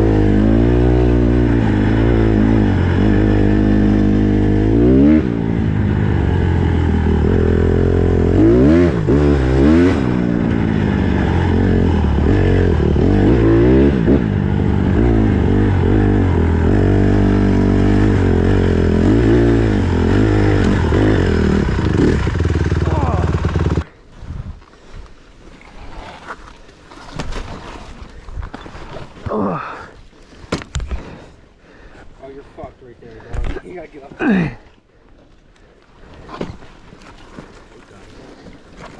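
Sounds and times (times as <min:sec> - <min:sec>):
dirt bike engine revving: 0:00.0 - 0:23.9.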